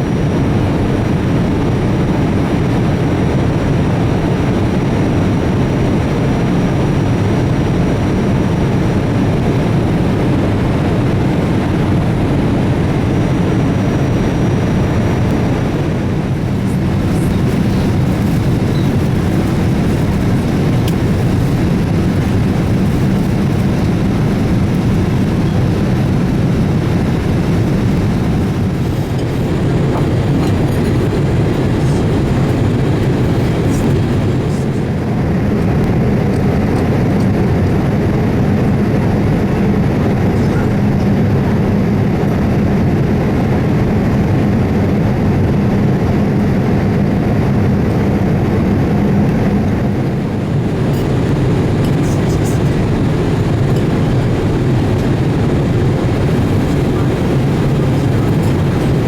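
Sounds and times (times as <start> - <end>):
airliner cabin engine rumble: 0.0 - 59.0
low hum: 46.4 - 59.0.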